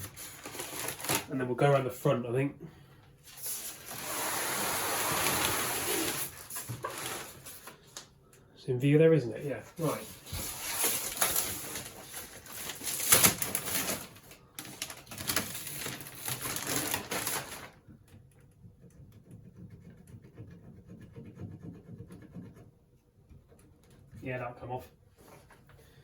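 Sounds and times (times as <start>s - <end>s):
cardboard and foam packaging rustling: 0.0s - 1.7s, 3.2s - 8.1s, 9.5s - 17.8s.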